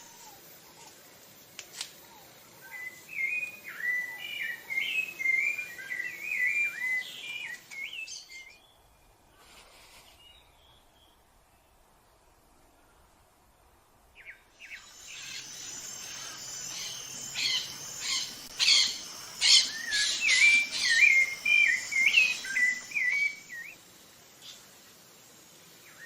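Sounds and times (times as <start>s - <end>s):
thrush whistled song: 2.6s - 8.8s, 14.6s - 23.8s
scratchy stuttering bird calls: 14.7s - 23.6s.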